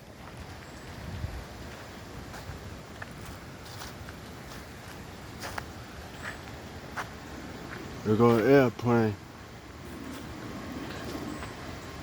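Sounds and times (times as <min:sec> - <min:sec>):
wind buffeting microphone: 0:00.0 - 0:08.2, 0:09.3 - 0:12.0.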